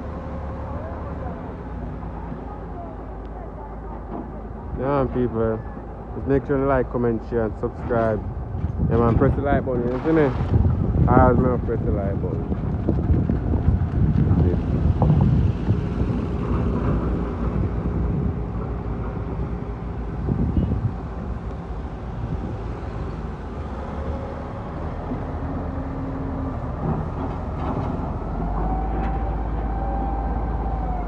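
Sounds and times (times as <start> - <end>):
road and rattle noise: 0.0 - 31.0.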